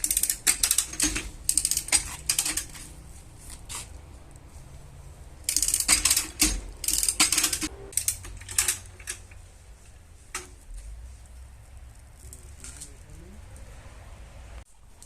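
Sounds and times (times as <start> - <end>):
metal hand tool clicking: 0.0 - 2.8, 5.5 - 9.2.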